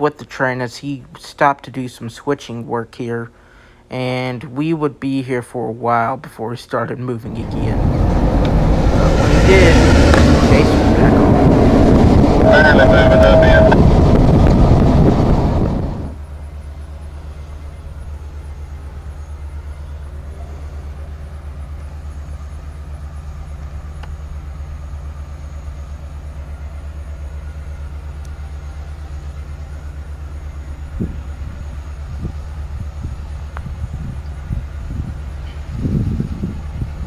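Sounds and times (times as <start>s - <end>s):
wind on microphone: 7.3s - 16.2s, 31.0s - 37.0s
vehicle engine rumbling: 7.3s - 16.3s.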